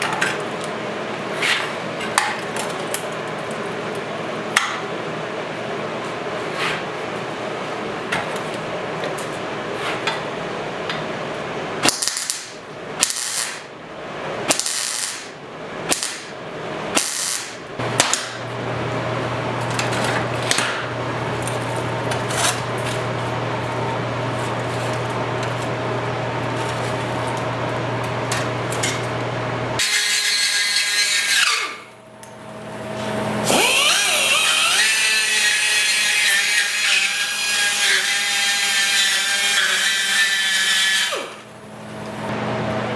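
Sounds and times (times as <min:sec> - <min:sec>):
power tool on rusted steel: 0:29.8 - 0:32.0, 0:33.4 - 0:41.5.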